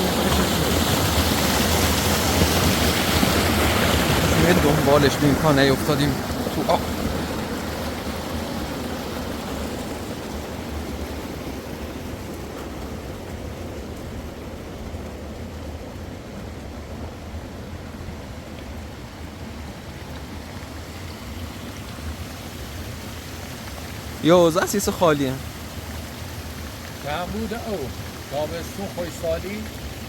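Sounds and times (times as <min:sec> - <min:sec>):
flowing stream rushing: 0:00.0 - 0:30.0.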